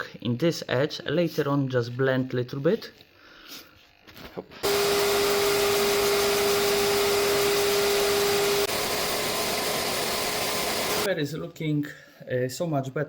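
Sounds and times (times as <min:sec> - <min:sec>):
electric sander humming: 0:04.6 - 0:11.1.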